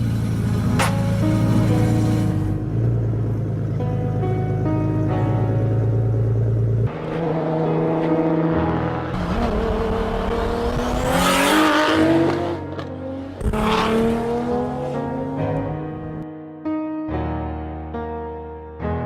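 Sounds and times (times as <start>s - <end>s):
background music: 0.4s - 19.0s
racing car engine revving: 6.9s - 15.6s
cars passing with rushing swooshes: 6.9s - 16.2s.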